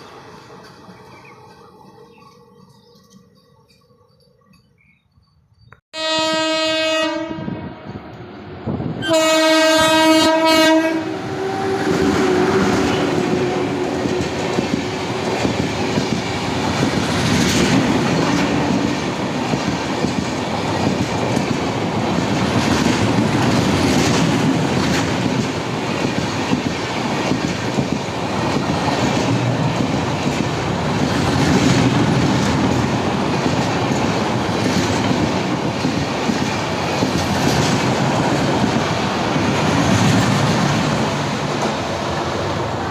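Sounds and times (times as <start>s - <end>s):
train passing with rolling rumble: 0.0s - 42.9s
train horn blast: 5.9s - 8.1s, 9.0s - 14.3s.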